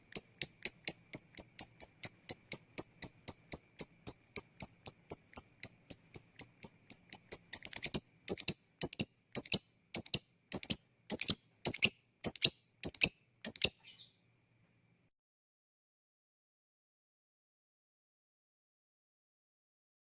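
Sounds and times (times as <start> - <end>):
lovebird high chirps: 0.0 - 14.2.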